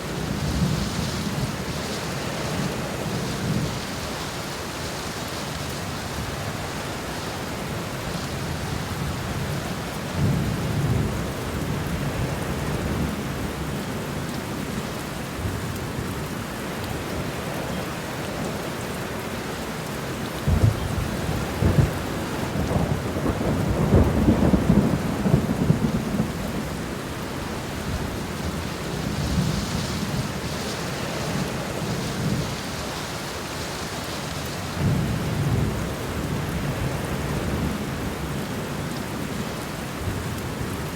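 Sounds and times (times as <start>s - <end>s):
steady rain falling: 0.0s - 40.9s
thunder rumbling: 20.5s - 34.0s, 34.7s - 37.8s.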